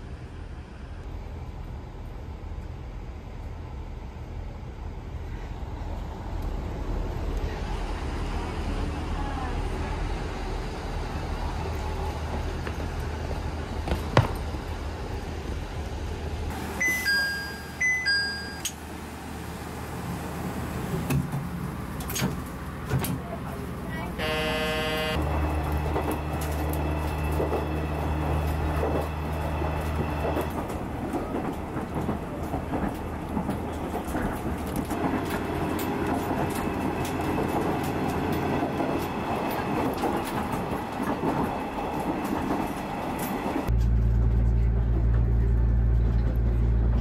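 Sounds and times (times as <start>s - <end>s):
rail and wheel noise: 0.0s - 47.0s
railcar engine drone: 0.0s - 47.0s.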